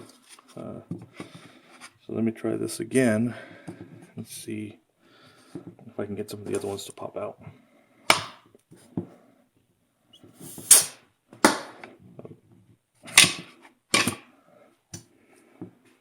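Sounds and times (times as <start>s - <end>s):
compressed air hissing bursts: 10.4s - 11.0s.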